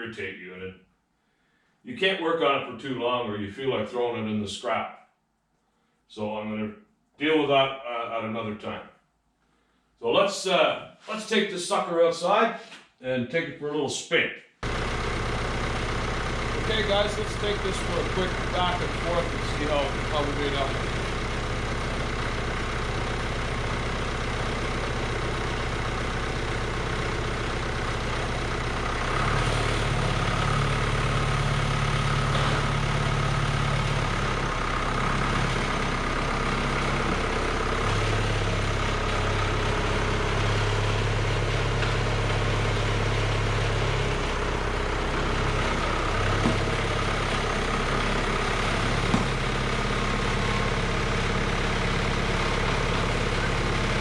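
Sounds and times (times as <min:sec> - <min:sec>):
tractor engine running: 0:14.6 - 0:54.0.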